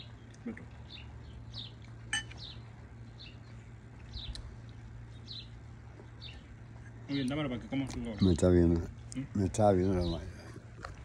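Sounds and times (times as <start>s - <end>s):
small bird chirping: 0.3s - 7.4s.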